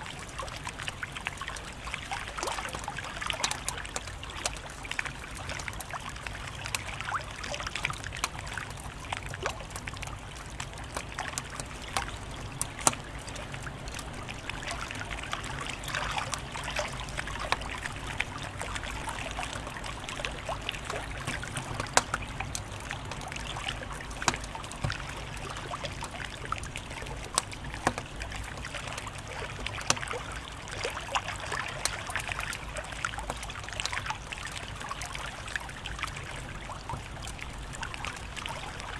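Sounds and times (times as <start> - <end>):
wood fire crackling and popping: 0.3 - 30.6.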